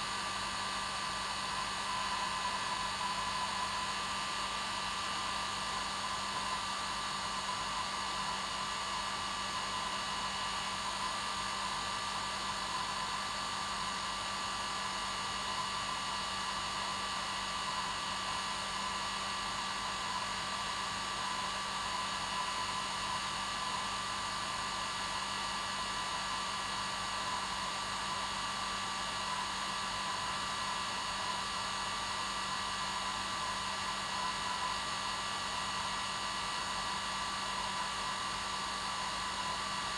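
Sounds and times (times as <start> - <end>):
hair dryer running: 0.0 - 10.4.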